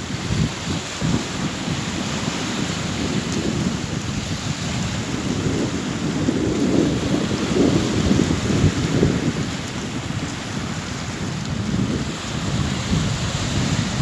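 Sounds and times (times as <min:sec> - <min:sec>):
sea waves washing ashore: 0:00.0 - 0:14.0.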